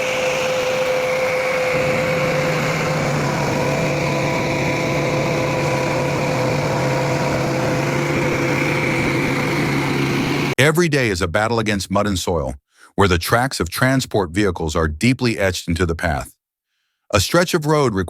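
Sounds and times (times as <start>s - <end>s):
deep hum: 0.0s - 10.6s
machine engine running: 0.0s - 10.6s.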